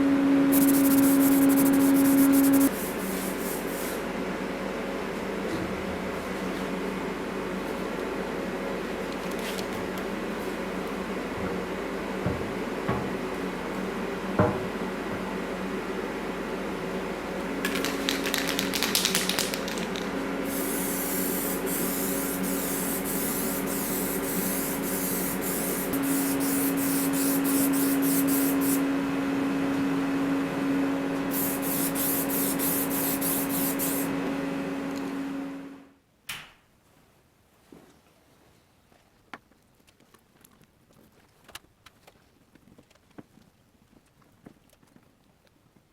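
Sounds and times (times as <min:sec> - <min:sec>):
spraying hiss in short pulses: 0:00.5 - 0:04.0.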